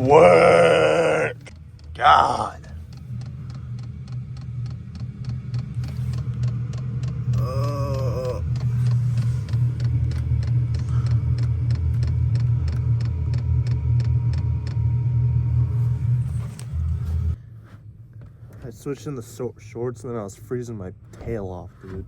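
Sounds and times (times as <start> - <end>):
groan-like vocal sound: 0.0 - 2.8, 7.3 - 9.3
truck engine running: 0.0 - 17.4.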